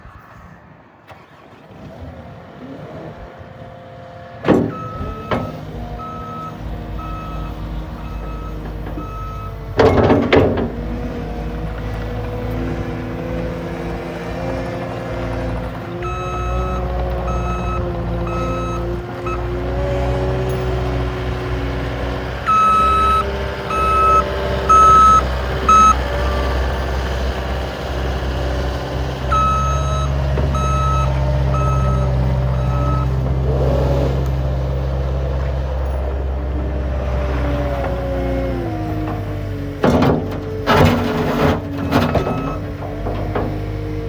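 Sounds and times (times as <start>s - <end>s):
diesel engine running: 1.1s - 44.0s
backup alarm beeping: 4.5s - 10.1s, 16.0s - 19.7s, 22.5s - 26.0s, 29.3s - 33.1s.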